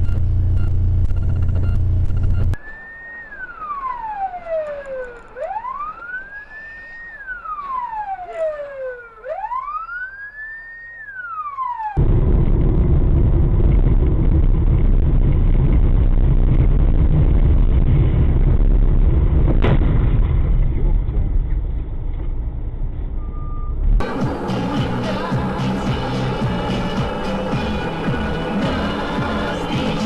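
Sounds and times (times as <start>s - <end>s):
vehicle rumble: 0.0s - 30.0s
siren wailing: 2.4s - 12.1s, 24.0s - 30.0s.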